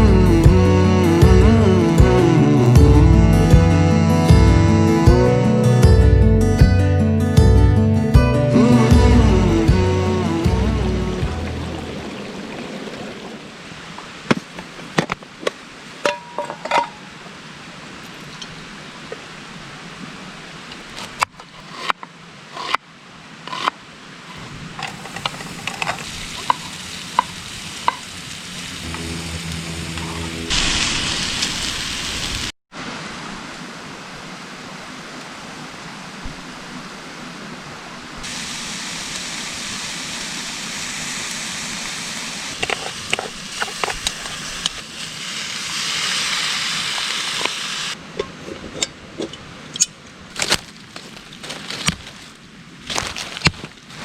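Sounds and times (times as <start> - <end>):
utensil stirring and scraping: 24.3 - 27.3
food sizzling in a pan: 24.8 - 32.5, 38.3 - 48.0.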